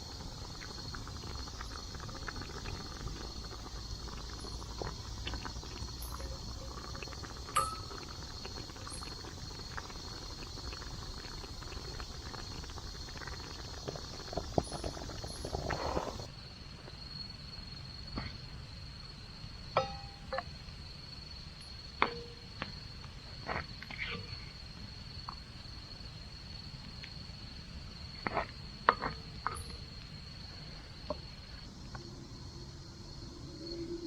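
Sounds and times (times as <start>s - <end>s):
insect trilling: 0.0s - 16.3s, 31.6s - 34.0s.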